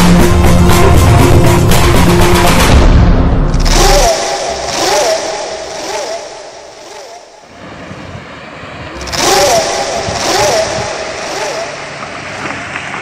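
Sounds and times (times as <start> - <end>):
vehicles passing by: 3.5 - 13.0.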